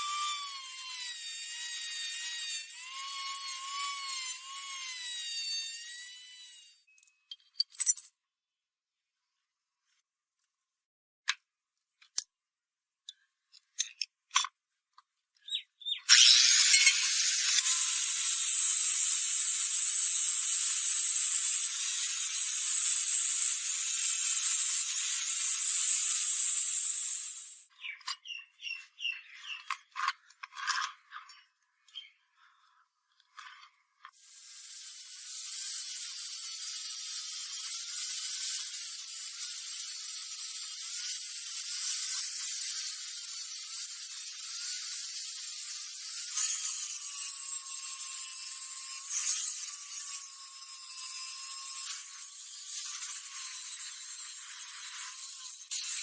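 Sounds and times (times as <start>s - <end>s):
power tool whining: 0.0s - 6.9s, 16.0s - 30.9s
power tool whirring: 0.0s - 6.9s, 15.8s - 32.1s, 33.2s - 56.0s.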